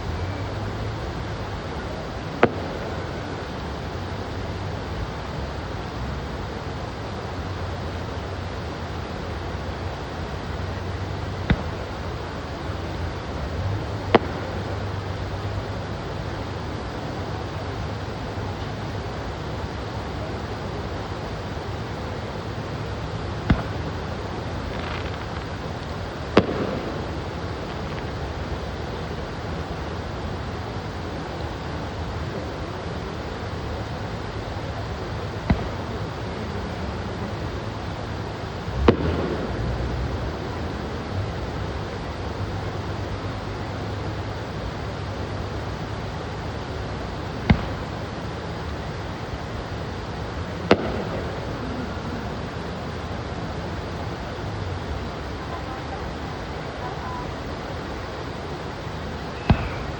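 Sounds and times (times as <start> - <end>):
firework bangs: 0.0 - 6.8, 9.0 - 16.2, 17.8 - 42.1, 46.4 - 53.0, 59.1 - 59.9
steady rushing background noise: 0.0 - 59.9
firework bang: 2.2 - 4.0, 11.3 - 12.4, 13.6 - 15.6, 22.4 - 28.7, 35.3 - 36.5, 38.6 - 41.2, 47.3 - 48.7, 50.6 - 52.2, 59.3 - 59.9.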